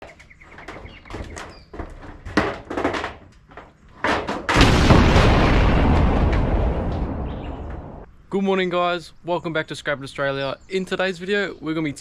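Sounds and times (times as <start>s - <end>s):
knocks and clatters: 0.0s - 5.1s.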